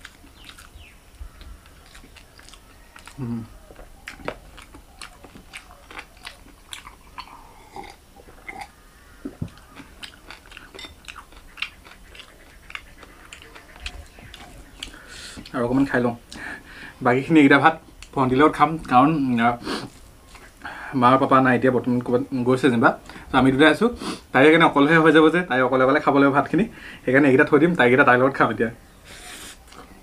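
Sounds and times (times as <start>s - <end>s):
chewing and lip-smacking: 0.0s - 16.5s, 19.9s - 20.6s, 29.4s - 30.0s.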